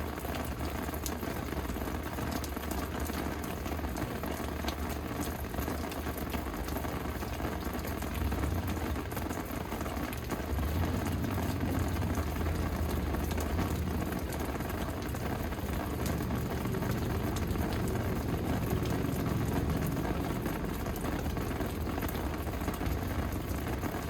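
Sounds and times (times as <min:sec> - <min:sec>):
raindrop taps: 0:00.0 - 0:24.0
steady rain falling: 0:00.0 - 0:24.0
low rumble: 0:10.2 - 0:24.0.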